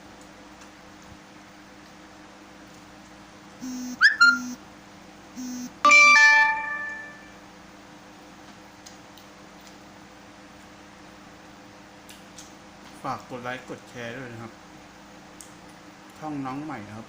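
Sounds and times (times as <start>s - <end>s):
electronic jingle: 3.6s - 4.6s, 5.4s - 7.4s.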